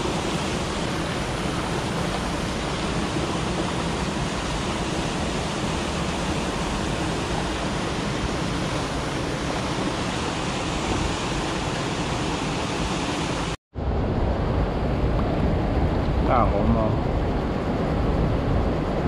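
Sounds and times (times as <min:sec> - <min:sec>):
water rushing over weir: 0:00.0 - 0:13.6.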